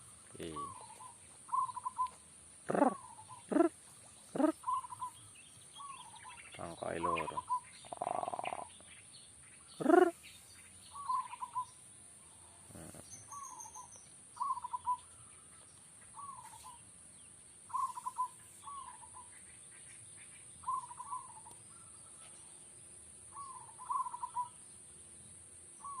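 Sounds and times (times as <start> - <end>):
dove cooing: 0.0 - 5.2, 5.8 - 8.8, 9.8 - 10.2, 10.9 - 11.7, 12.7 - 15.0, 17.7 - 19.3, 20.6 - 21.5, 23.3 - 24.6.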